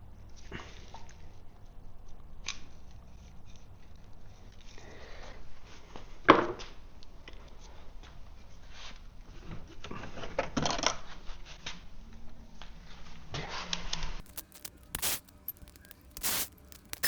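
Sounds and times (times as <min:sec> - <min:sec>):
metal parts clinking and scraping: 0:14.3 - 0:17.0.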